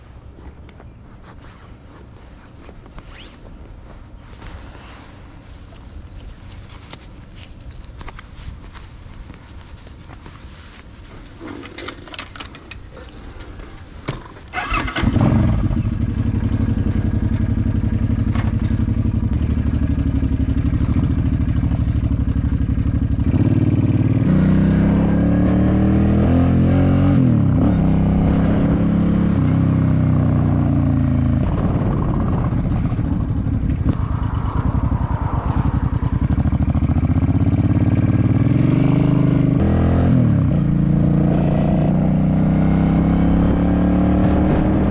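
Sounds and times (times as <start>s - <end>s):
motorcycle engine idling and revving: 11.4s - 44.9s.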